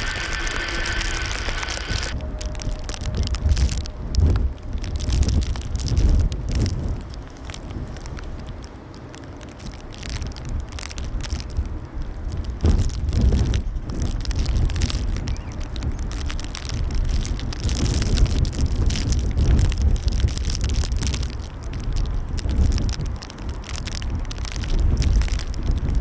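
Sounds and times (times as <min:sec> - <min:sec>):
crackling: 0:00.0 - 0:07.7
gusty wind on microphone: 0:00.0 - 0:08.6, 0:09.9 - 0:26.0.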